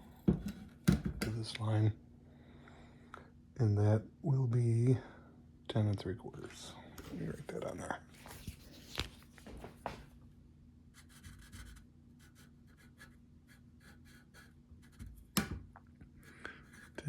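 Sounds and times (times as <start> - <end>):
pen strokes on a surface: 11.0 - 15.1.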